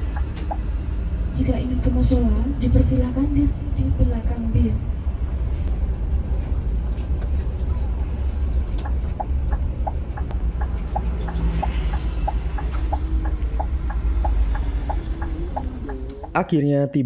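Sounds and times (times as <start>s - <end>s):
steady short ticking: 0.0s - 0.9s, 8.7s - 16.4s
bus engine low rumble: 0.0s - 16.4s.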